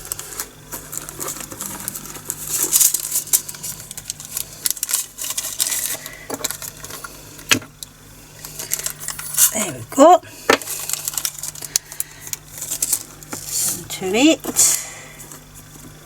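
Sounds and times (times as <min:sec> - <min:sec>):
plastic beads rattling into container: 0:08.5 - 0:09.6, 0:10.6 - 0:12.0.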